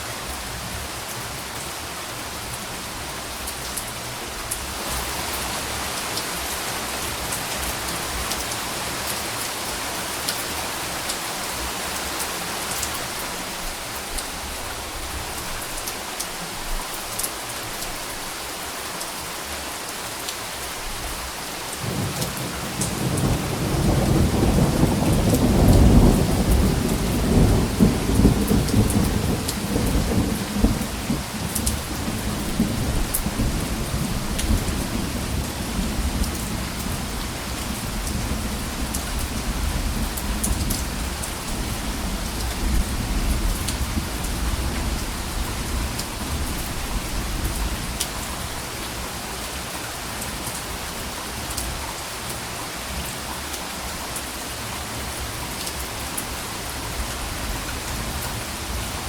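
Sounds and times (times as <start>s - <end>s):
steady rain: 0.0s - 59.0s
rolling thunder: 21.8s - 37.2s.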